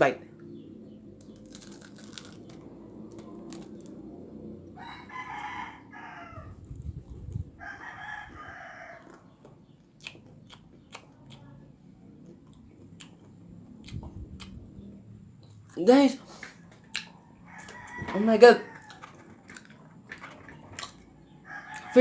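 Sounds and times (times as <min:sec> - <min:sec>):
rooster crowing: 0:04.7 - 0:06.6, 0:07.6 - 0:09.3, 0:16.9 - 0:19.5, 0:21.2 - 0:22.0.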